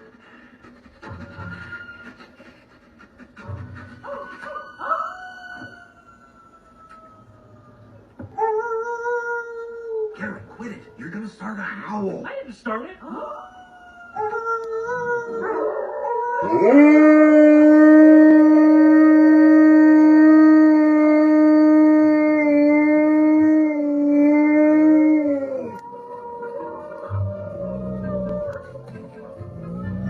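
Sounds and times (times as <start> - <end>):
dogs howling: 4.0 - 10.3, 13.2 - 30.0.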